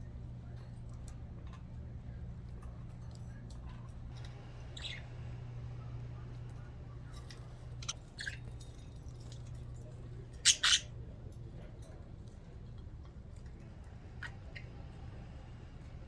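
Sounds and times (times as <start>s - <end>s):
steady low hum: 0.0s - 16.0s
bird squawks: 4.3s - 6.0s, 7.2s - 8.8s, 10.3s - 11.0s, 14.1s - 15.0s
budgerigars chirping: 4.6s - 5.2s, 7.7s - 8.7s, 10.4s - 10.9s.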